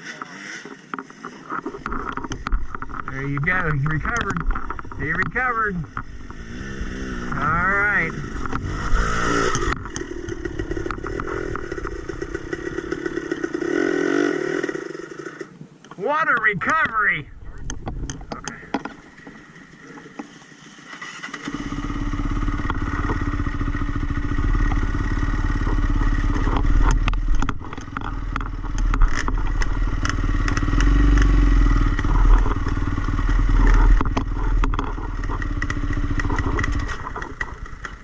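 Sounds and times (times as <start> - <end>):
dirt bike engine revving: 0.0 - 15.5, 20.9 - 38.0
sharp clicks and knocks: 0.6 - 6.4, 8.1 - 13.6, 17.6 - 19.4, 22.6 - 38.0.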